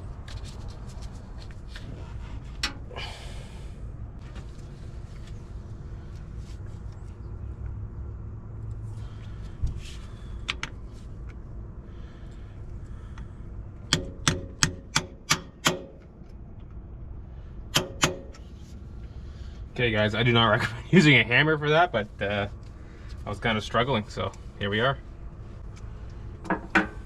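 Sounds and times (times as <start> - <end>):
hammer striking metal: 17.7 - 18.4.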